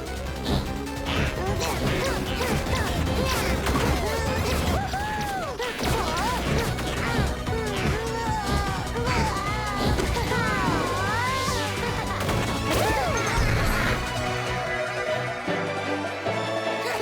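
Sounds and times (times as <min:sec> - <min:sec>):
crashing and whacking effects: 0:00.0 - 0:15.1
cartoon background music: 0:00.0 - 0:17.0.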